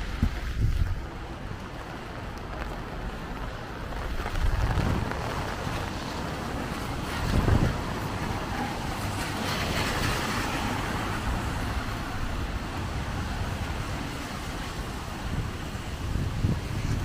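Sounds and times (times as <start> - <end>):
low wind rumble: 0.0 - 17.0
steady rain: 0.0 - 17.0
vehicle tyres hissing on wet road: 0.0 - 17.0.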